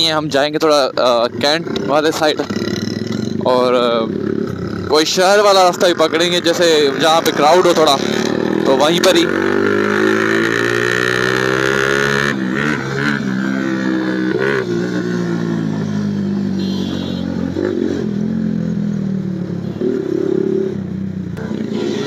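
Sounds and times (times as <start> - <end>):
motorcycle engine running: 0.8 - 22.0.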